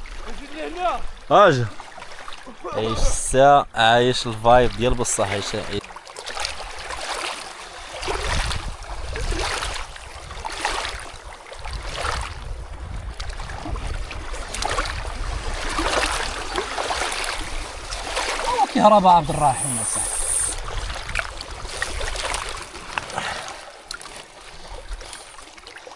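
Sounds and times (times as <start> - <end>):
water rushing and splashing: 0.0 - 25.9
wind buffeting microphone: 8.0 - 18.7, 19.4 - 22.9.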